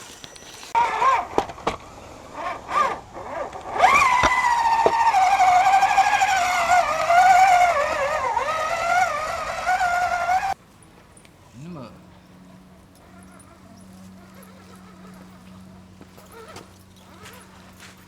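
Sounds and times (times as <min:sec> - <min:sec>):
rc truck motor whine: 0:00.0 - 0:10.6.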